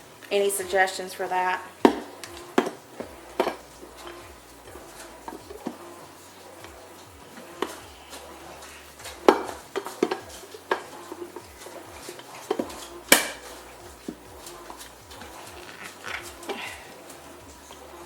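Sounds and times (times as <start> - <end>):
plastic containers clattering: 1.8 - 5.9, 6.5 - 17.8.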